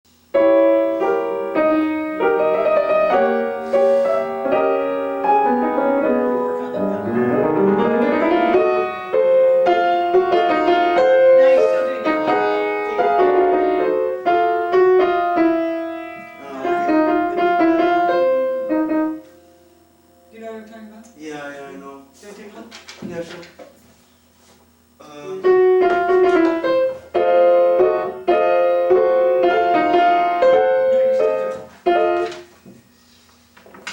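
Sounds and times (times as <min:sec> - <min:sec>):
classical piano piece: 0:00.3 - 0:20.6, 0:25.4 - 0:32.6.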